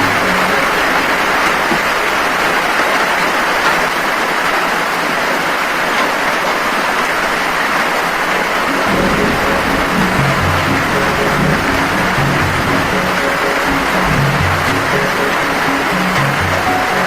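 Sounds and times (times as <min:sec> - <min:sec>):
music: 0:00.0 - 0:01.6, 0:08.7 - 0:17.0
heavy rain falling: 0:00.0 - 0:17.0.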